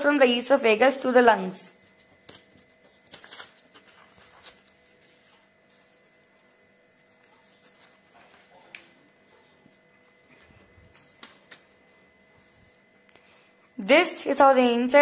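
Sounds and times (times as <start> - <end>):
faint steady hum: 0.0 - 15.0
soft paper clicks: 2.1 - 4.8.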